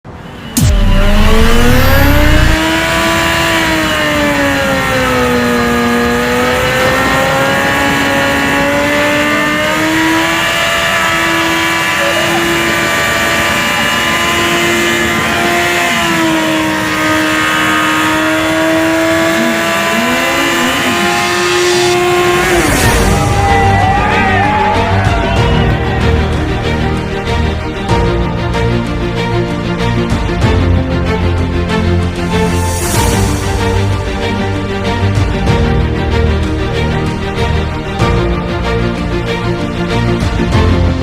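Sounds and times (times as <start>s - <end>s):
engine at high revs: 0.0s - 23.7s.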